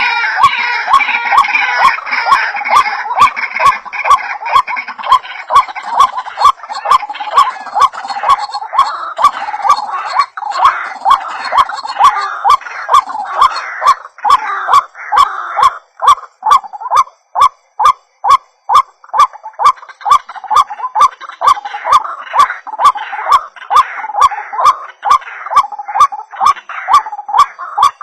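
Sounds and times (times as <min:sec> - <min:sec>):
waterhen calling: 0:00.0 - 0:28.0.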